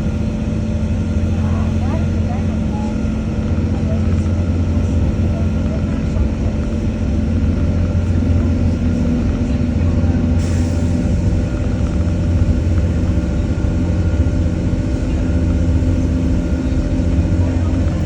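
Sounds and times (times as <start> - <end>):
constant humming tones: 0.0 - 18.0
train engine drone and rumble: 0.0 - 18.0.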